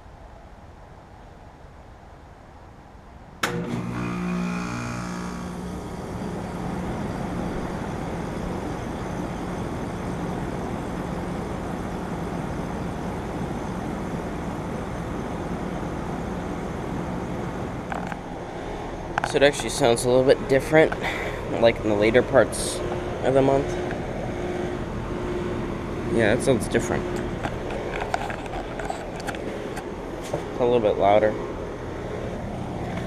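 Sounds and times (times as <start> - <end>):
air conditioner switching on click: 3.4 - 7.8
air conditioner unit running: 3.4 - 33.0.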